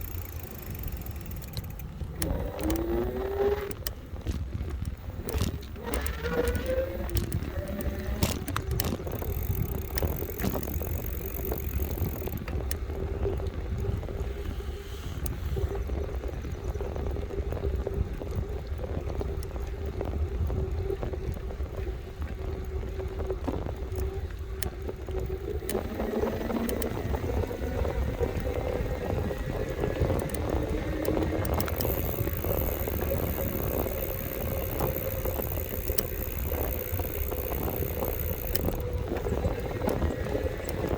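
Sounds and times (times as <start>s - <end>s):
electric motor whine: 0.0s - 3.9s, 5.0s - 12.4s, 24.3s - 40.9s
small clicks and rattles: 0.0s - 14.5s, 15.1s - 40.9s
wind rumble on microphone: 0.0s - 40.9s.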